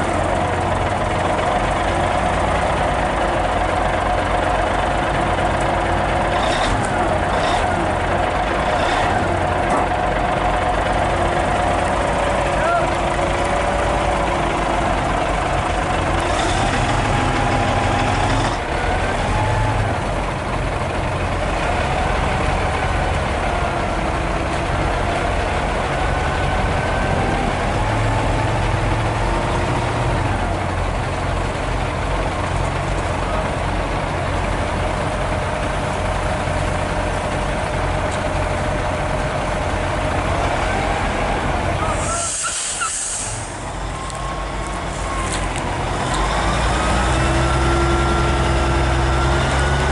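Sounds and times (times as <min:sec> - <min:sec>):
diesel truck engine from cab: 0:00.0 - 0:49.9
brief hiss: 0:42.0 - 0:43.5.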